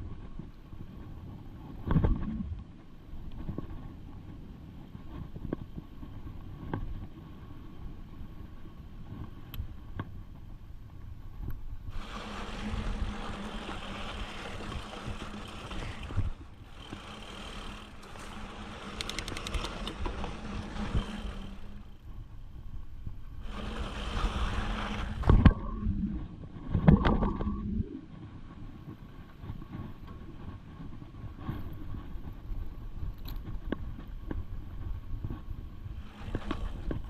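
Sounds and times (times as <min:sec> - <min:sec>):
wind on microphone: 0:00.0 - 0:37.0
freewheel hub buzzing hiss: 0:11.9 - 0:22.2, 0:23.3 - 0:25.3, 0:36.0 - 0:37.0
mountain bike riding over rough trail: 0:11.9 - 0:22.4, 0:23.0 - 0:25.6.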